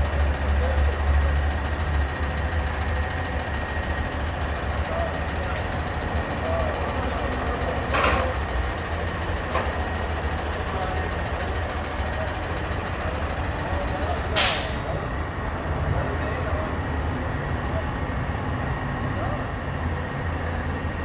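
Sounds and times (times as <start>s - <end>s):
garbage truck engine rumbling: 0.0s - 21.0s
air brake hisses: 14.4s - 15.0s.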